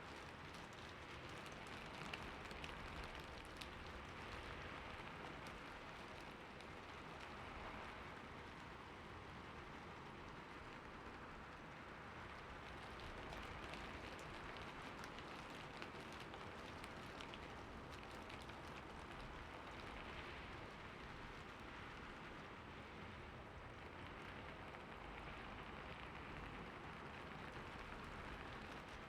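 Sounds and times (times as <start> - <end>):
rain on hard surfaces: 0.0 - 29.0
raindrop ticks: 0.1 - 7.4, 12.3 - 21.7.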